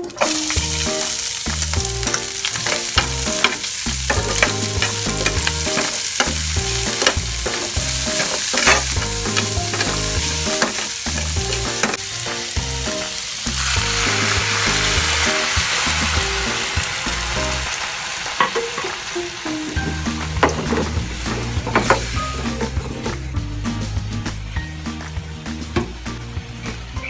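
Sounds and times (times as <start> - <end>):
onions sizzling in a frying pan: 0.0 - 23.2
utensil scraping and knocking pan: 19.8 - 23.2.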